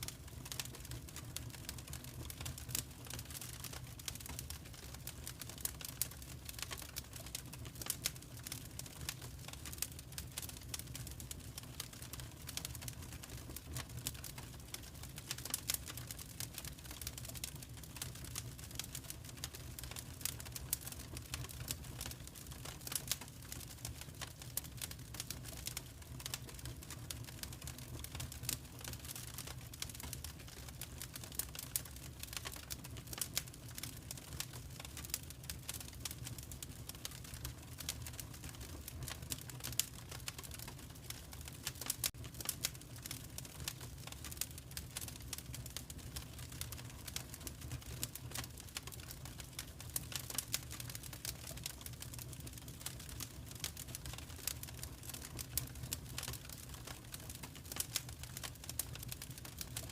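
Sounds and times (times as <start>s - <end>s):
low rumble of burning fire: 0.0s - 59.9s
wood fire crackling and popping: 0.0s - 59.9s.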